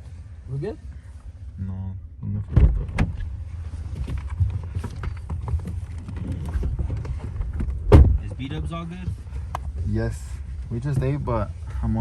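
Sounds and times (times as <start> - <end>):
car cabin rumble: 2.2 - 12.0
knocks and rustles of people shifting: 2.4 - 12.0.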